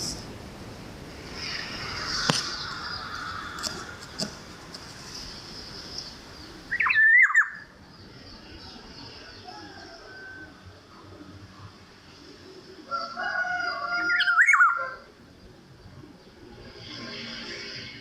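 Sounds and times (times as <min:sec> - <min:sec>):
light drizzle hiss: 0:00.0 - 0:07.2
bird whistled call: 0:06.7 - 0:07.7.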